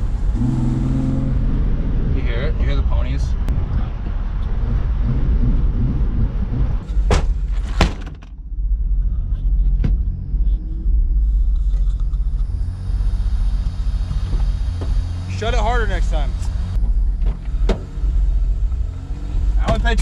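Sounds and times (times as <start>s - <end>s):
car engine running: 0.0s - 20.0s
sharp knocks: 3.5s - 8.3s.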